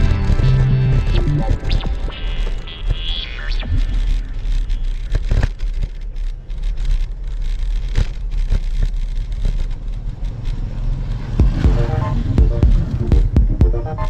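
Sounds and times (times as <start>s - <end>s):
road noise rumble: 0.0s - 14.0s
wind buffeting microphone: 5.1s - 13.7s.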